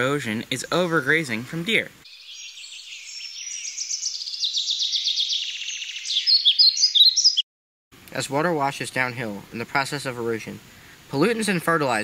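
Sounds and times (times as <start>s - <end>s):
songbird trilling: 2.0s - 7.4s
bird chirps: 2.0s - 7.5s.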